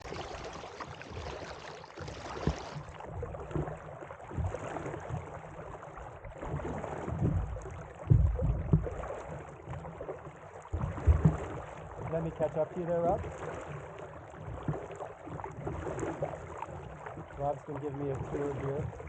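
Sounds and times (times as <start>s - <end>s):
paddle splashing water: 0.0s - 19.0s
low thumps: 7.1s - 9.1s.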